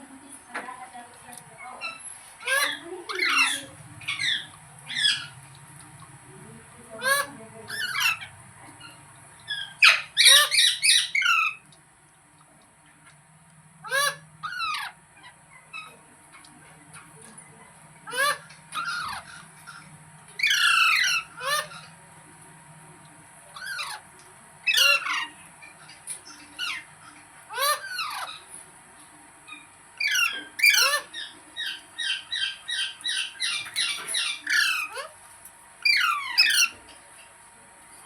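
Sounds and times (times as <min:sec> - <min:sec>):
parakeet screeching: 0:01.8 - 0:05.4, 0:06.9 - 0:11.6, 0:13.8 - 0:16.0, 0:18.0 - 0:21.9, 0:23.6 - 0:25.4, 0:26.2 - 0:26.9, 0:27.5 - 0:28.5, 0:29.5 - 0:35.2, 0:35.8 - 0:36.8.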